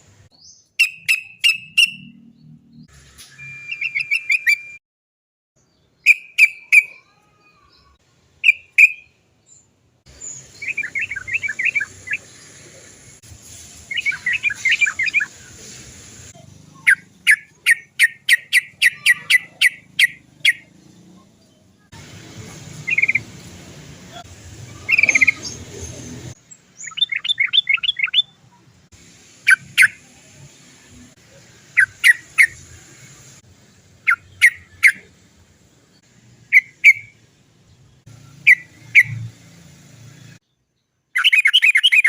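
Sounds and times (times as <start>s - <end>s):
bulbul sharp calls: 0.4s - 2.3s, 6.0s - 9.2s, 10.2s - 12.6s, 16.7s - 20.7s, 22.8s - 23.3s, 24.2s - 26.1s, 26.8s - 28.4s, 31.7s - 32.7s, 34.0s - 35.2s, 36.5s - 37.2s, 38.3s - 39.3s, 41.2s - 42.0s
bird chattering: 0.8s - 2.3s, 6.0s - 7.2s, 10.2s - 12.8s, 13.9s - 15.6s, 16.7s - 20.8s, 22.8s - 23.3s, 24.7s - 28.4s, 31.7s - 32.6s, 34.0s - 35.2s, 36.5s - 37.2s, 41.2s - 42.0s.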